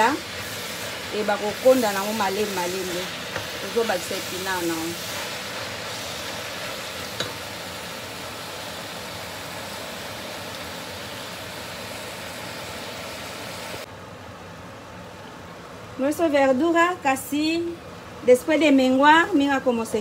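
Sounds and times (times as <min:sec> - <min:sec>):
vegetables sizzling in oil: 0:00.0 - 0:13.9.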